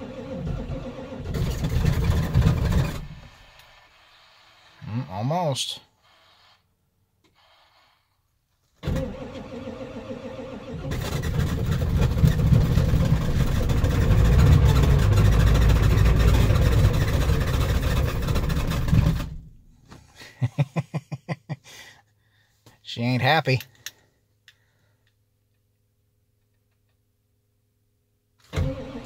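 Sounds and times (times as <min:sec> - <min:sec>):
diesel engine cranking on starter: 0:00.0 - 0:04.6, 0:08.8 - 0:19.4, 0:28.4 - 0:29.0.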